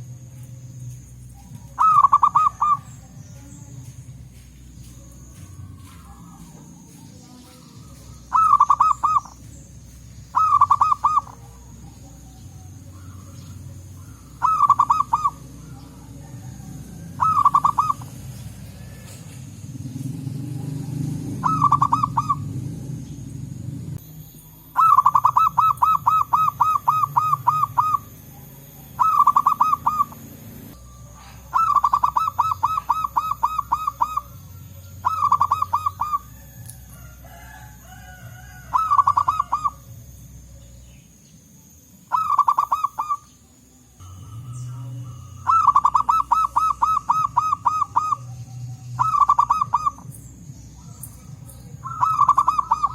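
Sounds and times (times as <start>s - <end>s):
doves cooing: 0.0s - 40.7s, 42.1s - 43.4s, 44.0s - 52.9s
low rumble: 15.1s - 24.6s.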